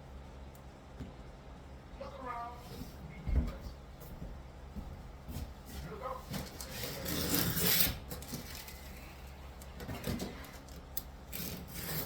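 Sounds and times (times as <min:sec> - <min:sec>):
scraping on a wall: 0:06.3 - 0:09.1, 0:11.3 - 0:12.0.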